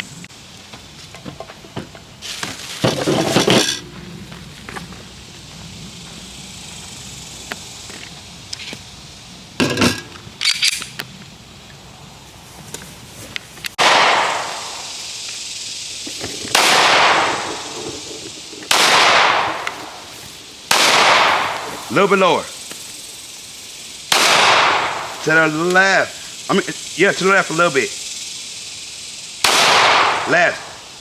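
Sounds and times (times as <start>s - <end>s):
gunshots with echoing tail: 13.8s - 14.9s, 16.5s - 17.8s, 18.7s - 20.0s, 20.7s - 21.8s, 24.1s - 25.1s, 29.4s - 30.7s.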